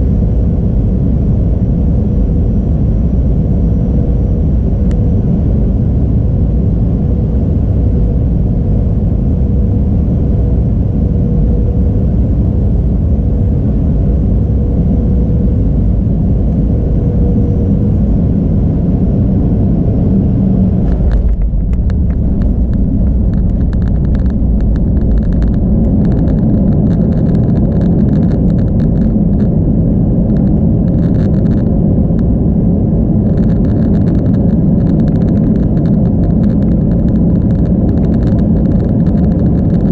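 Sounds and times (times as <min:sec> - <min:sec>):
jet cabin rumble: 0:00.0 - 0:39.9.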